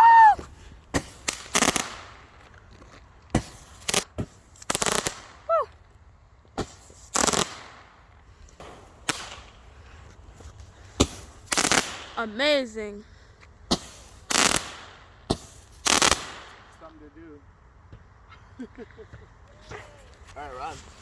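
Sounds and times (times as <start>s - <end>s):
fireworks bangs and crackling: 0.0s - 2.5s, 3.2s - 5.6s, 6.5s - 12.7s, 13.7s - 17.0s.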